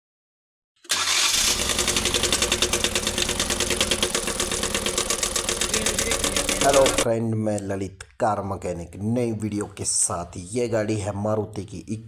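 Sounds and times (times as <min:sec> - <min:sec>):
engine knocking: 0:00.9 - 0:07.1.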